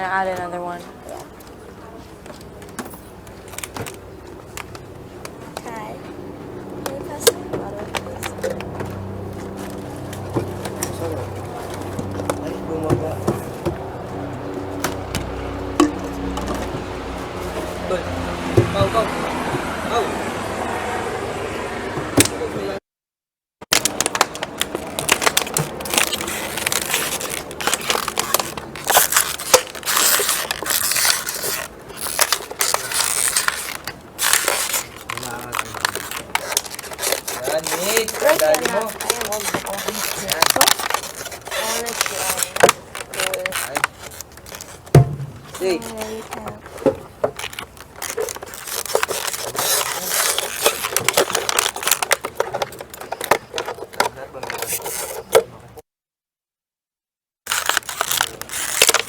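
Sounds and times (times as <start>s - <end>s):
plastic crinkling: 1.0s - 5.8s, 6.6s - 20.0s, 23.7s - 55.4s, 57.5s - 59.0s.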